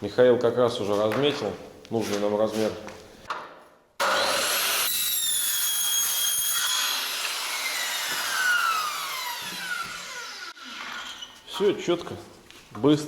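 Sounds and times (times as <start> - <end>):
circular saw cutting metal: 4.0 - 11.4.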